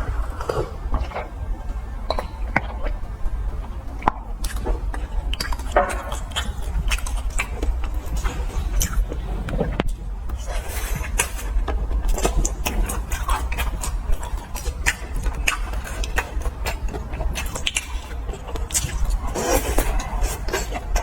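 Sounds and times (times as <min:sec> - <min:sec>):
crunching and chewing food: 0:00.0 - 0:21.0
steady low hum: 0:00.0 - 0:21.0.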